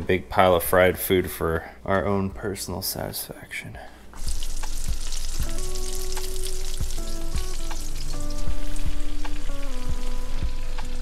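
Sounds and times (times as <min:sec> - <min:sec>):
background music with steady beat: 0:00.0 - 0:11.0
fish frying in bubbling oil: 0:04.2 - 0:11.0.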